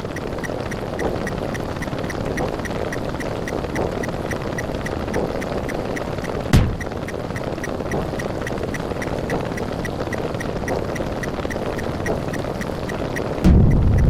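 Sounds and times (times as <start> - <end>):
faint rapid ticking: 0.0 - 14.0
steady buzzing hum: 6.4 - 7.1, 13.4 - 14.0.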